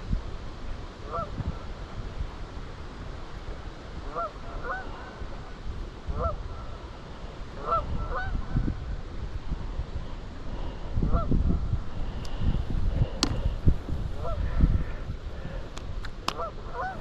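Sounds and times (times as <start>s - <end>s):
wind rumble on microphone: 0.0s - 17.0s
goose honking: 4.1s - 4.9s, 7.6s - 8.4s, 16.4s - 17.0s.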